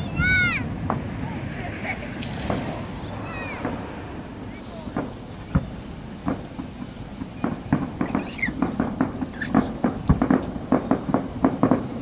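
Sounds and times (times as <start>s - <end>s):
fireworks crackling pops: 0.0s - 12.0s
deep firework bang: 2.3s - 4.2s, 4.8s - 12.0s.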